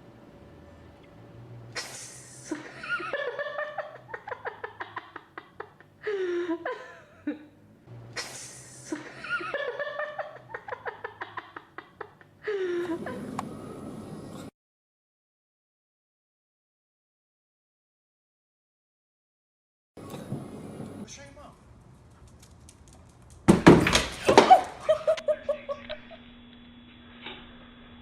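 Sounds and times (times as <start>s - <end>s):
laughter in pulsing bursts: 1.7s - 14.5s, 24.2s - 26.3s.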